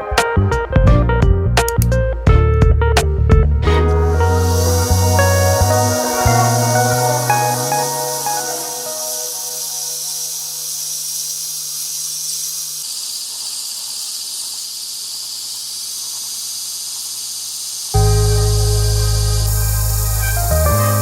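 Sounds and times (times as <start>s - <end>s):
loud music with a beat: 0.0s - 7.5s
low held drone: 3.6s - 10.6s, 18.0s - 21.0s
high hiss: 3.6s - 21.0s.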